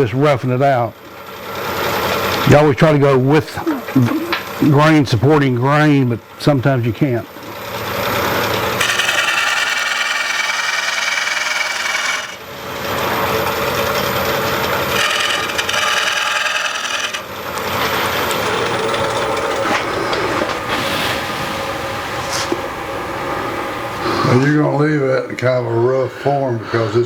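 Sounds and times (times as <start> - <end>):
lathe tool scraping wood: 8.0 - 21.4.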